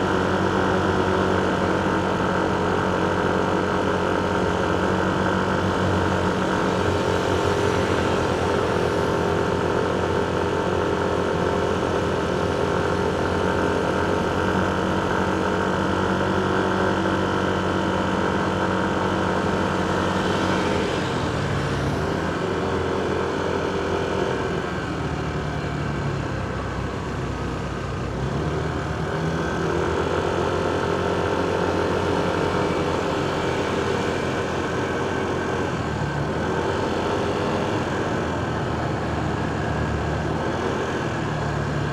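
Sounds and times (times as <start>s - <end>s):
motorcycle engine hum: 0.0s - 41.9s
traffic engines: 0.0s - 41.9s.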